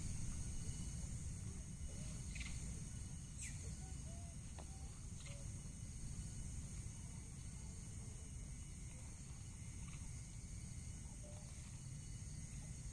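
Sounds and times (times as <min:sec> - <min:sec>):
high-pitched insect drone: 0:00.0 - 0:12.9
low rumbling hiss: 0:00.0 - 0:12.9
birds chirping: 0:01.8 - 0:05.5.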